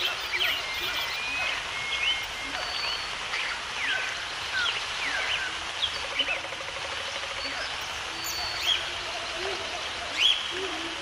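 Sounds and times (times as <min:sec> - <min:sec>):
birds chirping and whistling: 0:00.0 - 0:06.0, 0:07.5 - 0:09.0
outdoor ambience hiss: 0:00.0 - 0:11.0.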